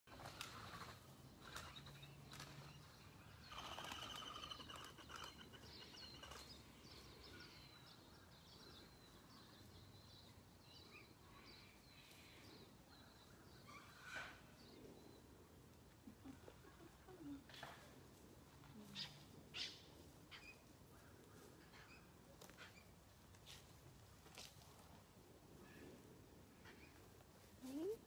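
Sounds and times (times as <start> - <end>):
birds chirping: 0.1 - 15.4.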